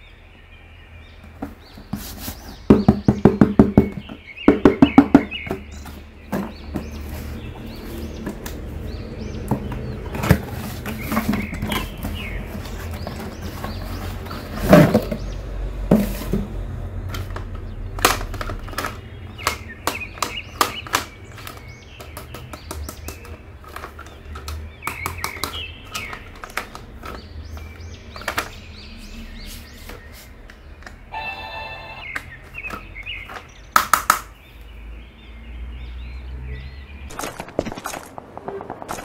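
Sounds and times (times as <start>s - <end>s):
hands handling cardboard box: 1.4s - 4.0s.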